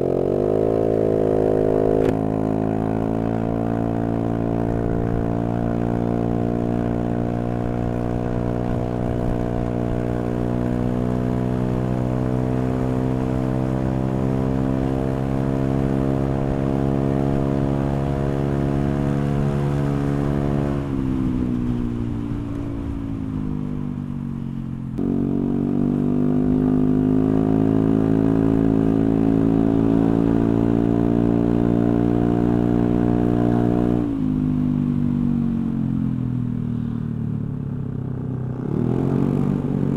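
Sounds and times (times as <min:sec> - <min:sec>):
scooter engine revving: 0:00.0 - 0:05.4.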